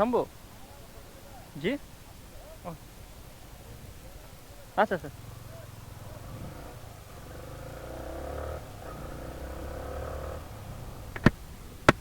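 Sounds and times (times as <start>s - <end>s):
engine and traffic rumble: 0.0s - 12.0s
faint pitched drone: 0.0s - 12.0s
sharp knocks: 11.1s - 12.0s.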